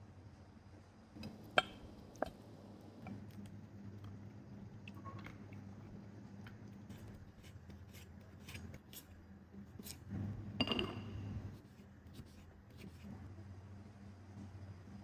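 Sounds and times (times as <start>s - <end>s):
low electrical hum: 0.0s - 15.0s
knife cutting on a board: 6.9s - 10.1s.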